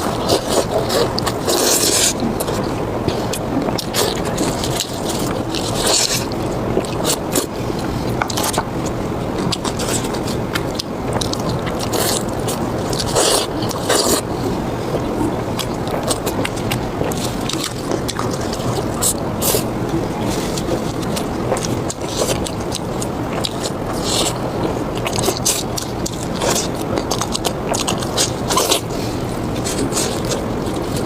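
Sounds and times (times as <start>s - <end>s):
close chewing: 0.0s - 31.0s.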